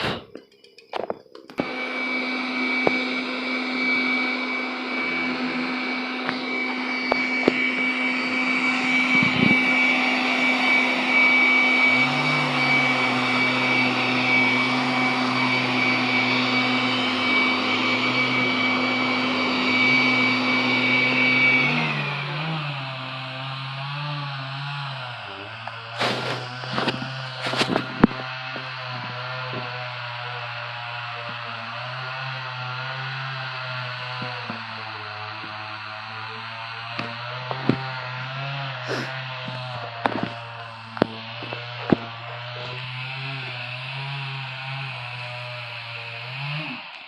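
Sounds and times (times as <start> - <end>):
chainsaw motor running: 0.0 - 47.0.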